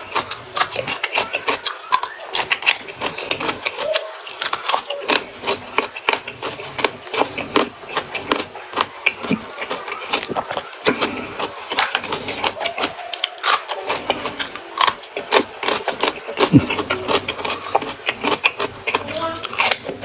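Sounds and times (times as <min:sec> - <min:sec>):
chewing and crunching food: 0:00.0 - 0:20.0
wet mouth clicks: 0:00.1 - 0:20.0.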